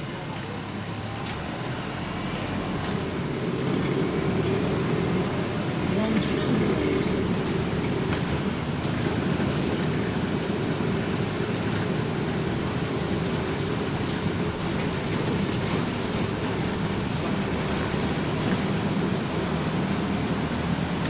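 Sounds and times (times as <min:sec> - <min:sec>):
bus engine and road rumble: 0:00.0 - 0:21.0
light ticks and rattles: 0:02.8 - 0:21.0.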